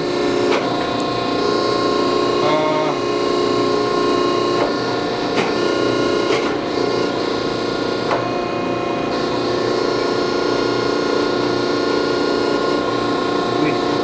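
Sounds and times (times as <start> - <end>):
grinding machine humming and whining: 0.0 - 14.0.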